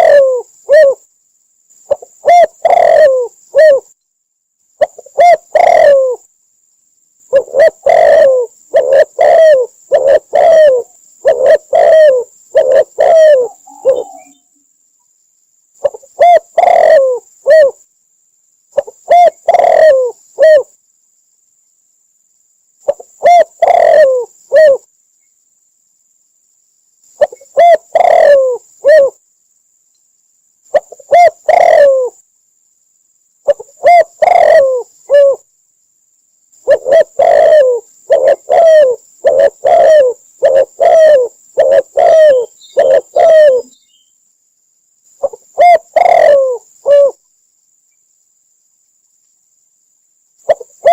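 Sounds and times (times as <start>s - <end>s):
dove cooing: 0.0s - 1.0s, 1.9s - 3.9s, 4.8s - 6.3s, 7.3s - 14.5s, 15.8s - 17.8s, 18.8s - 20.7s, 22.8s - 24.9s, 27.2s - 29.2s, 30.7s - 32.2s, 33.4s - 35.5s, 36.6s - 43.8s, 45.2s - 47.2s, 50.4s - 50.9s.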